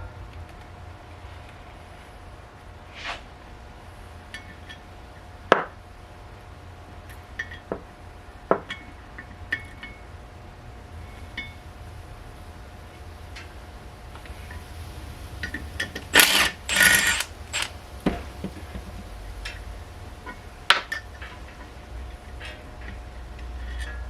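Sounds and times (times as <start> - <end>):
faint hum: 0.0 - 24.0
metal tools clinking: 15.4 - 17.7.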